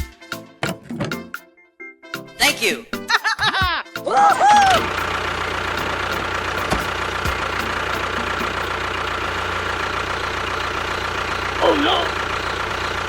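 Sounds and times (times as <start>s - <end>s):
tractor engine idling: 4.4s - 13.0s.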